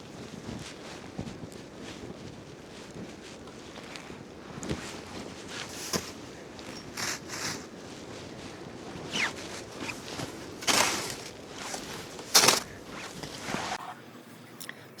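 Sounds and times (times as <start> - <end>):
snow shovel scraping snow: 3.4 - 13.8
shovel knock: 9.8 - 13.6.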